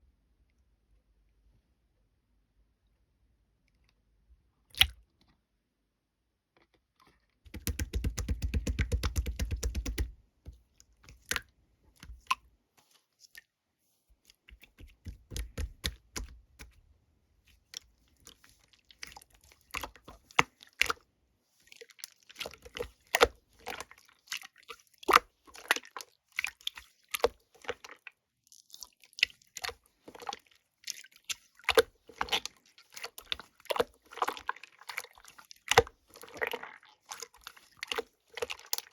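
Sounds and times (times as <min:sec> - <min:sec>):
slime squishing with wet clicks: 0:04.7 - 0:05.4, 0:06.6 - 0:13.6, 0:14.2 - 0:16.9, 0:17.5 - 0:38.9
slime crackling: 0:28.6 - 0:38.9.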